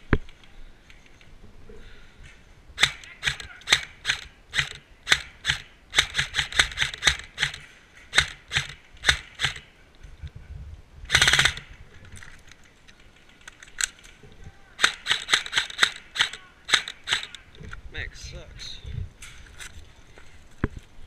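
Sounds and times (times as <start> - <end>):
airsoft rifle full-auto burst: 2.8 - 9.7, 11.1 - 11.7, 14.8 - 17.5.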